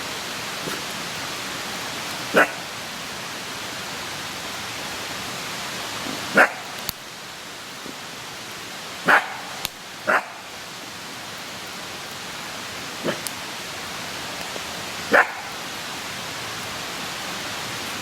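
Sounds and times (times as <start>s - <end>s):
steady hiss: 0.0s - 18.0s
dog barking: 2.3s - 2.7s, 6.3s - 6.8s, 9.1s - 10.4s, 15.1s - 15.6s.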